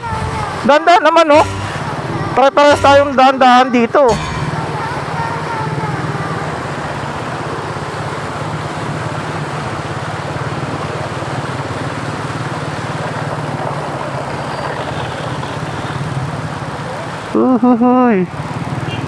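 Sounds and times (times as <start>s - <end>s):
motorcycle engine running: 0.0s - 19.0s
road noise: 0.0s - 19.0s.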